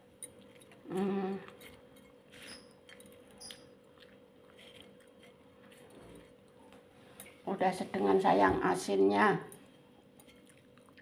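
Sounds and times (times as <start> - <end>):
chewing fish: 0.2 - 7.4, 9.6 - 11.0.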